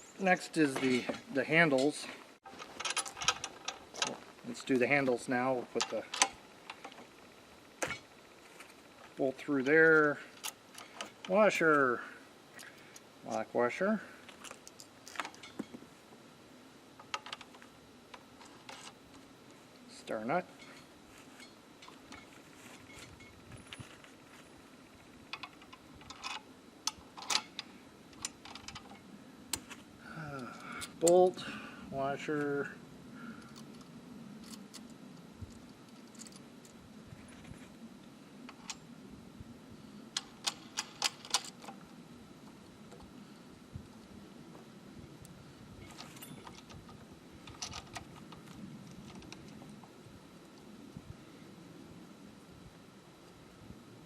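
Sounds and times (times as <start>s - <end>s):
sharp metal clicks: 5.8s - 7.0s, 40.1s - 41.8s.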